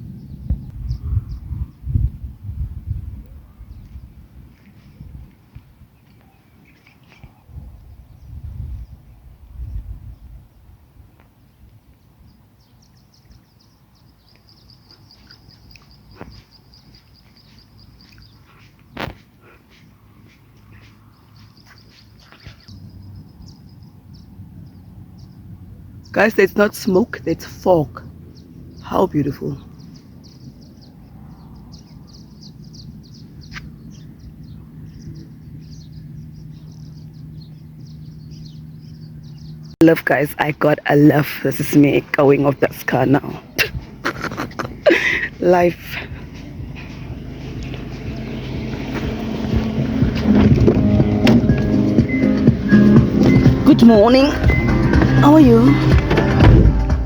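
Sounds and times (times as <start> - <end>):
bird chirping rapidly: 19.9 - 44.0, 51.9 - 56.0
car engine idling: 44.9 - 57.0.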